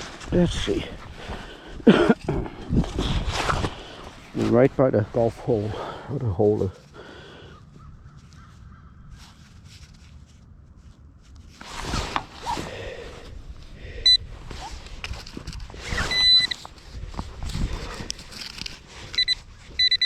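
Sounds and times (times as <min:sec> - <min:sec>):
handling and scraping noise: 0:00.0 - 0:20.0
metal detector beep: 0:14.0 - 0:14.2, 0:15.8 - 0:16.7, 0:19.0 - 0:20.0.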